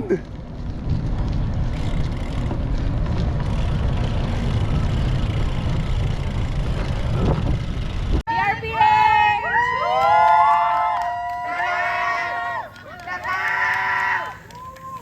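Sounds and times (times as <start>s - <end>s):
wind buffeting microphone: 0.0s - 9.4s
road noise: 0.0s - 15.0s.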